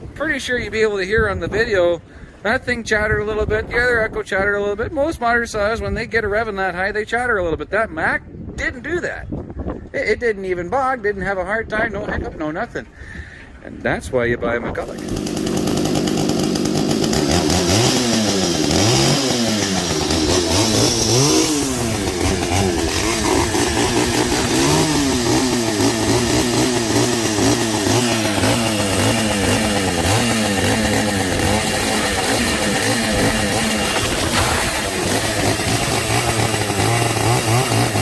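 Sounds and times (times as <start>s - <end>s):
chainsaw revving: 14.8s - 38.0s.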